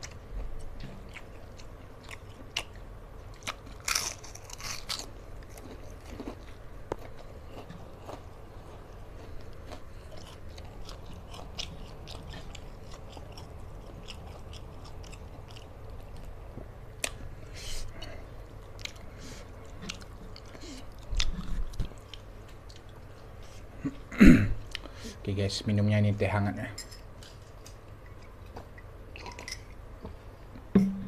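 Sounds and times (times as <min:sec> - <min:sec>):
person chewing: 0:00.0 - 0:24.0.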